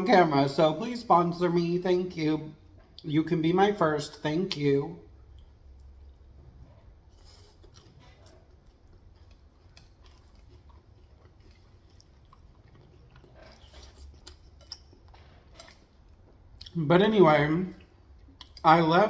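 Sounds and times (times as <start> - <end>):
chewing with wet mouth sounds: 4.5 - 19.0.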